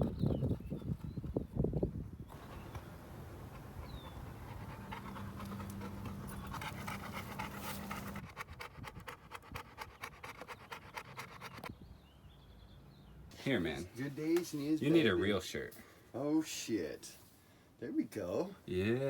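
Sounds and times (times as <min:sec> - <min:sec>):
quick panting: 0:03.4 - 0:11.7.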